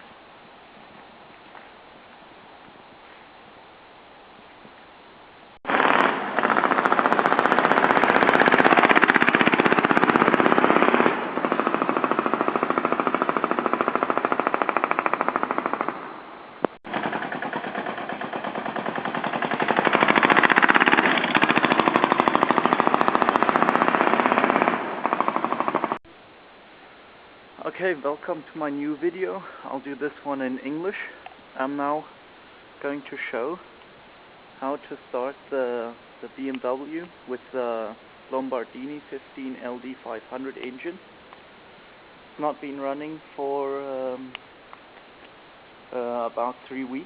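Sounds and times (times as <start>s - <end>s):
diesel motorcycle engine chugging: 16.9s - 24.6s.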